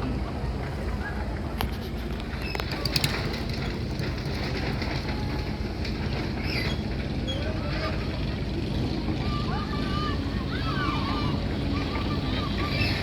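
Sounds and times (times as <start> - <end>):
low motor rumble: 0.0 - 13.0
clicks and rattles: 1.6 - 7.1.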